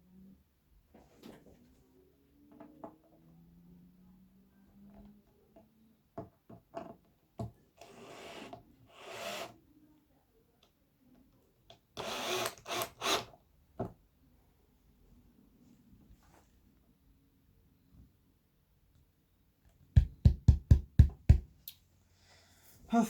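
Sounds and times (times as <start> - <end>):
knocks on wooden cabinet: 20.0 - 21.5.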